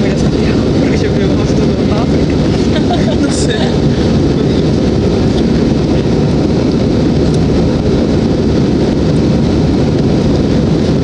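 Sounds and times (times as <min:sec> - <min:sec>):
jet engines rumbling in cabin: 0:00.0 - 0:11.0.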